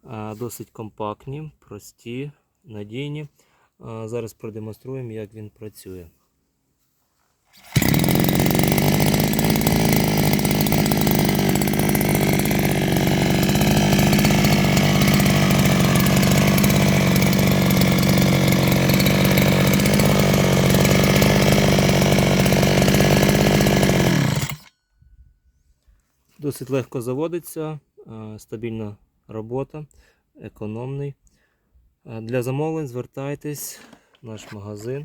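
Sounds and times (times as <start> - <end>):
brush cutter engine running: 7.6 - 24.7.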